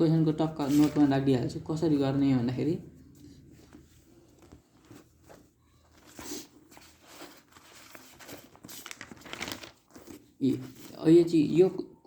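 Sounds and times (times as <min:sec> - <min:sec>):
faint rustling and handling: 0:00.5 - 0:01.3, 0:02.9 - 0:11.4.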